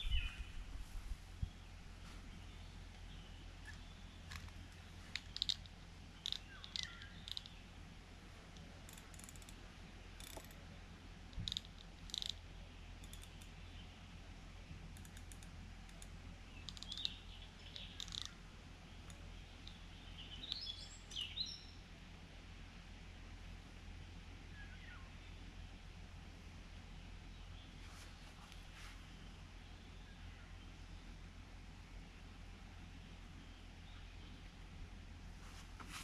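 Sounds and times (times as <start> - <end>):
bird chirps: 0.0 - 0.7, 2.3 - 7.7, 11.4 - 14.0, 16.5 - 21.8
low steady hum: 0.0 - 36.0.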